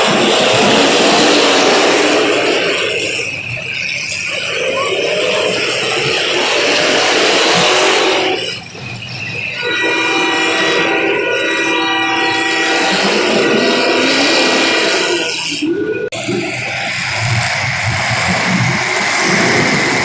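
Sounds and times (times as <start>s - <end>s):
loud steady noise: 0.0s - 20.0s
horn blast of held tones: 9.6s - 15.7s.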